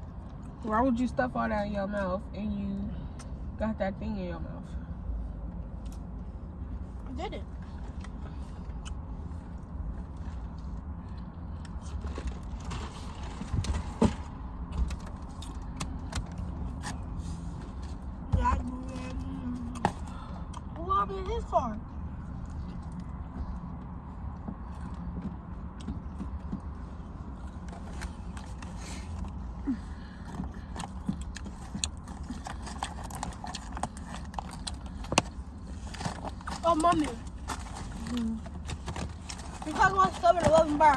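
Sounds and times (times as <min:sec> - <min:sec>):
chewing and lip smacks: 0:22.3 - 0:29.4
chewing: 0:22.3 - 0:40.2.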